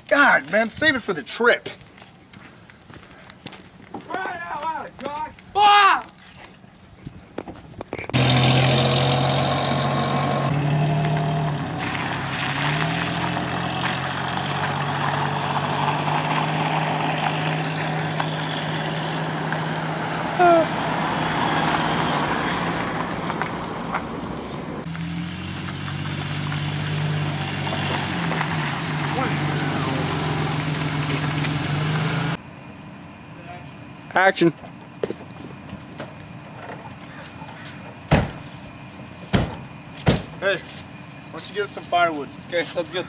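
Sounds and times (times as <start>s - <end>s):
car engine running: 8.1s - 34.0s.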